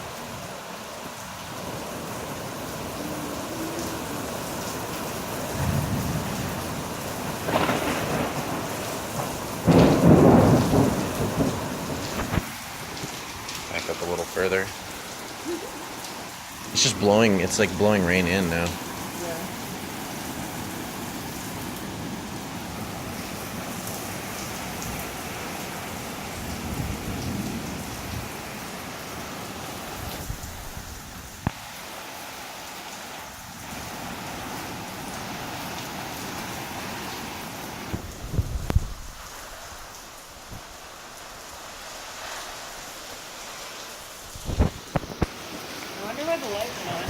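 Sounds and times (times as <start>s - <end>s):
heavy rain falling: 0.0s - 47.0s
wind: 0.0s - 47.0s
thunder: 5.6s - 12.5s.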